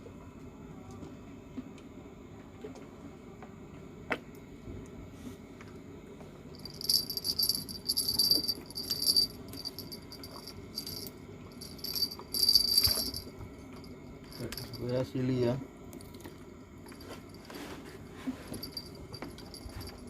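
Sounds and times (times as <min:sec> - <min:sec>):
fishing reel ratcheting: 0:06.6 - 0:13.2.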